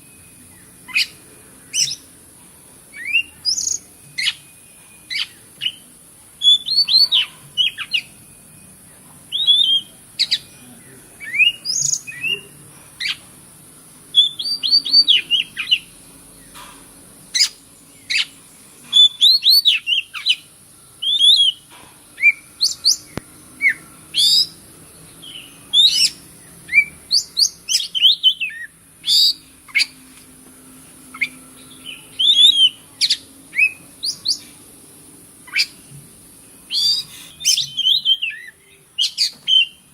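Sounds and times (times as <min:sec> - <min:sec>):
steady high hiss: 0:00.0 - 0:39.9
bird whistling and chirping: 0:00.1 - 0:02.1, 0:02.9 - 0:05.8, 0:06.4 - 0:08.2, 0:09.3 - 0:10.4, 0:11.2 - 0:13.2, 0:14.1 - 0:15.9, 0:17.3 - 0:24.6, 0:25.2 - 0:30.0, 0:31.1 - 0:34.4, 0:35.5 - 0:35.9, 0:36.7 - 0:39.9.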